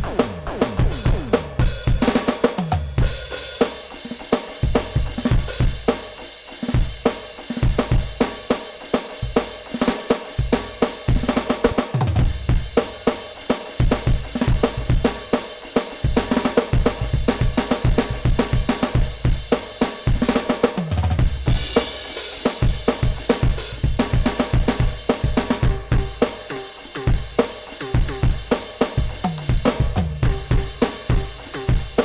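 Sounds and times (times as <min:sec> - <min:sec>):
tom strokes falling in pitch: 0:00.0 - 0:01.8
electronic drum kit groove: 0:00.0 - 0:32.0.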